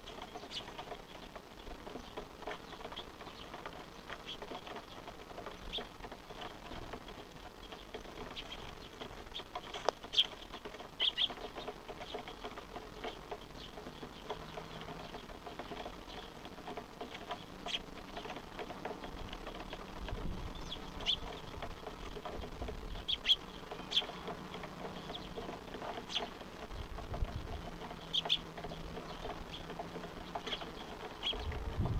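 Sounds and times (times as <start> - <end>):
fledglings chirping: 0.0 - 6.7, 7.6 - 31.8.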